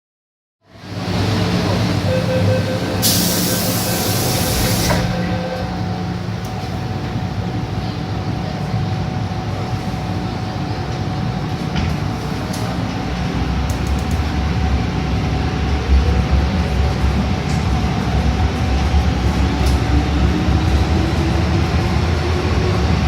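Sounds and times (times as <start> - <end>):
electric train rumbling hum: 0.6 - 23.0
hissing air burst: 3.0 - 5.3.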